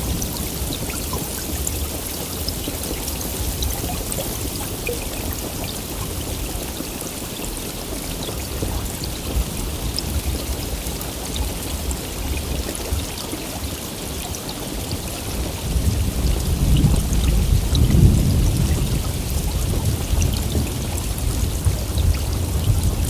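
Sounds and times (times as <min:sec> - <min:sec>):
heavy rain pouring: 0:00.0 - 0:23.0
raindrops ticking: 0:00.0 - 0:23.0
low rumble of thunder: 0:15.2 - 0:23.0.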